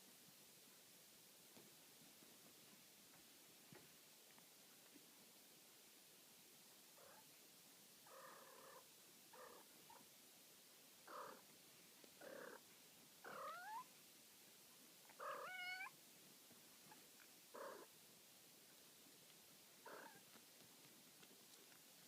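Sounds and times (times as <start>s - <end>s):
kittens mewing: 12.2s - 12.6s, 13.2s - 13.8s, 15.2s - 15.9s, 19.8s - 20.2s.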